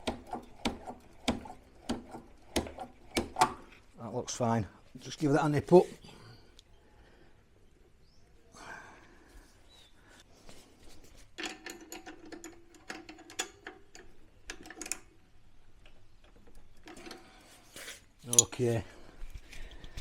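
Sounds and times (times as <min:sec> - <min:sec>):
spanner clicking on a nut: 0:18.2 - 0:18.6.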